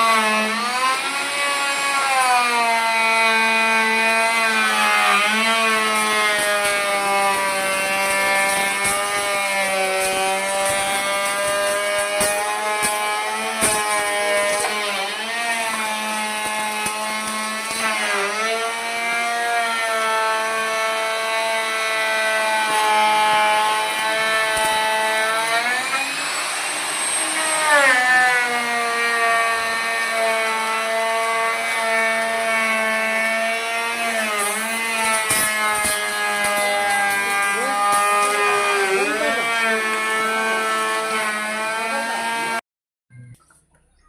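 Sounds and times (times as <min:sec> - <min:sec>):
power tool motor whine: 0:00.0 - 0:42.6
rasping wood cut: 0:00.0 - 0:42.6.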